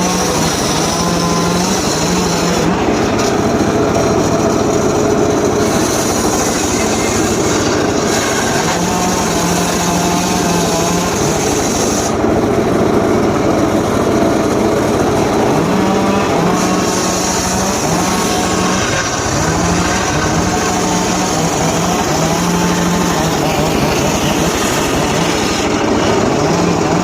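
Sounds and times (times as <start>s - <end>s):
power saw engine running: 0.0s - 27.0s.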